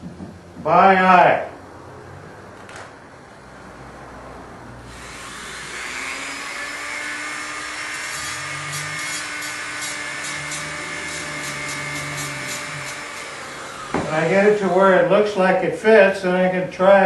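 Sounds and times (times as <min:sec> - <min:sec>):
rotary tool grinding wheel whine: 0:04.9 - 0:14.8.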